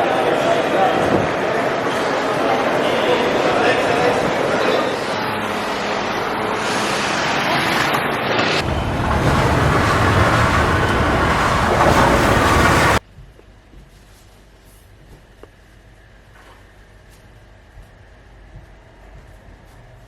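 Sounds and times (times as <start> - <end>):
street traffic hiss and rumble: 3.4 - 13.0.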